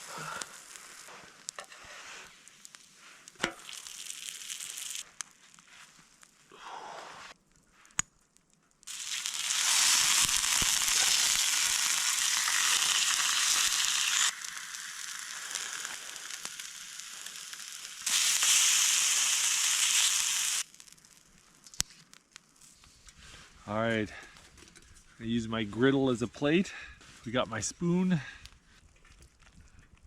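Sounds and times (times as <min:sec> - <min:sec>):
meat sizzling on a griddle: 0:03.5 - 0:05.0, 0:08.9 - 0:20.8.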